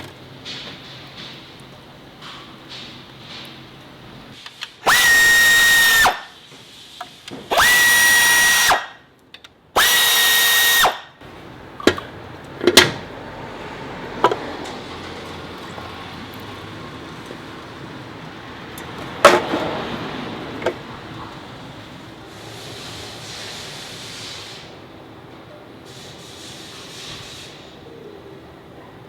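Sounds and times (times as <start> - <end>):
power tool motor whining: 4.8 - 6.4, 7.5 - 9.0, 9.8 - 11.1.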